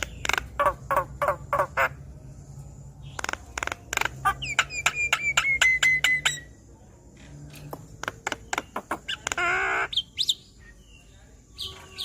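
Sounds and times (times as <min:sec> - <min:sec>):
warbling bird call: 0:00.0 - 0:02.0, 0:03.0 - 0:06.6, 0:08.0 - 0:10.8.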